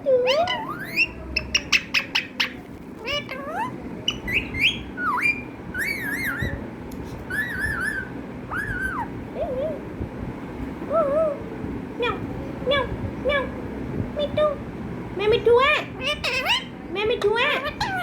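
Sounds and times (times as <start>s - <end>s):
parrot chirping: 0.1s - 6.6s, 7.3s - 9.2s, 16.0s - 18.0s
parrot whistled squawks: 0.3s - 2.6s, 3.5s - 6.6s, 7.3s - 9.1s.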